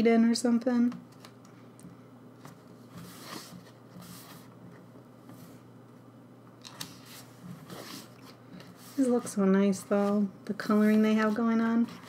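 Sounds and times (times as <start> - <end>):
paper pages rustling: 2.4 - 4.6, 6.6 - 12.0.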